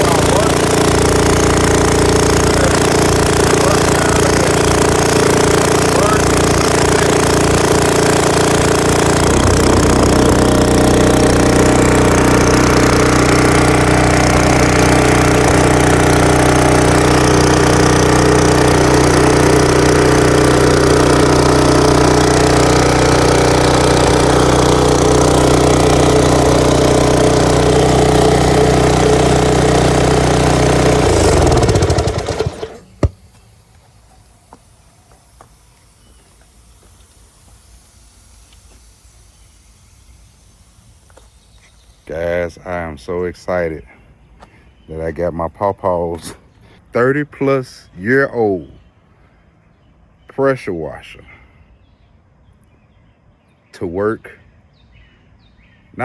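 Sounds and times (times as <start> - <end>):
small gasoline engine running: 0.0 - 42.2.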